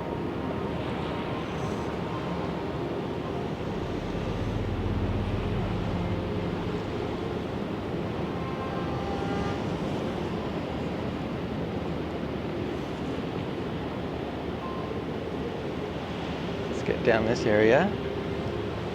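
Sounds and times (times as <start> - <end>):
low engine drone: 0.0 - 12.4
ocean surf: 0.0 - 18.9
steady wind: 0.0 - 18.9.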